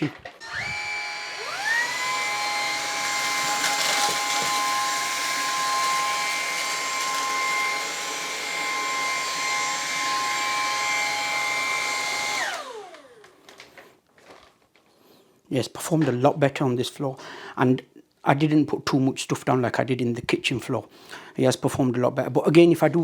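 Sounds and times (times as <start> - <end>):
stick vacuum motor whine: 0.0 - 13.7.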